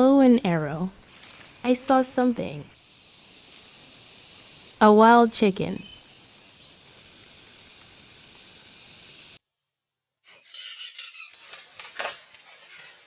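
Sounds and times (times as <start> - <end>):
forest background hiss: 0.0 - 9.4
high insect-like tone: 0.0 - 9.4.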